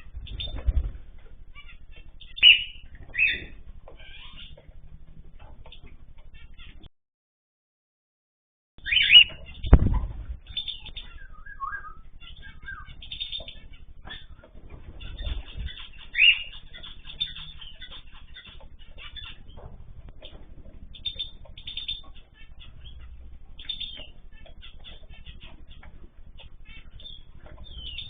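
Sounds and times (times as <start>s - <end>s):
cage birds chirping: 0.0s - 6.9s, 8.8s - 28.0s
wings flapping: 0.0s - 6.9s, 9.1s - 28.0s.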